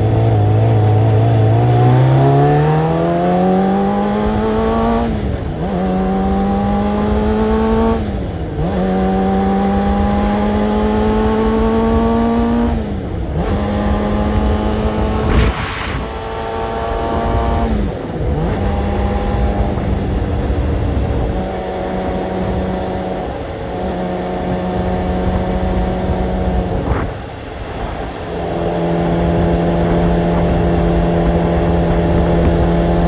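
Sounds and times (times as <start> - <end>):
motorcycle engine accelerating: 0.0 - 33.0
steady rush of noise: 13.2 - 30.3.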